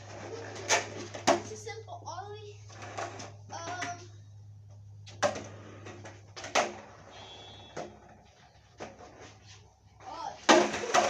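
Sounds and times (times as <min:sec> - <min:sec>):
skateboard rolling knocks: 0:00.0 - 0:01.6, 0:02.7 - 0:04.1, 0:05.0 - 0:09.4, 0:10.4 - 0:11.0
skateboard landing clack: 0:00.1 - 0:01.6, 0:05.1 - 0:08.2, 0:10.4 - 0:11.0
skateboard tail snapping: 0:05.2 - 0:08.1, 0:10.5 - 0:11.0.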